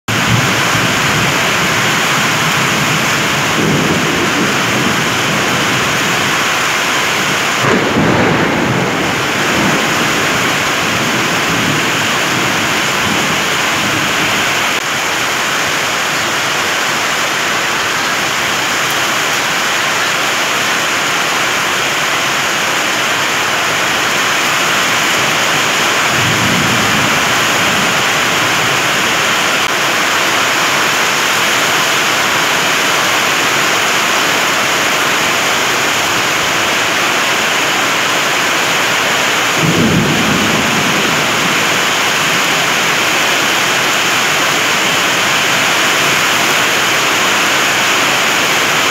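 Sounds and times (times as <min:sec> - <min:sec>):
heavy rain pouring: 0:00.0 - 0:48.9
strong wind: 0:00.1 - 0:20.4, 0:21.5 - 0:48.9
low rumbles: 0:00.2 - 0:14.8.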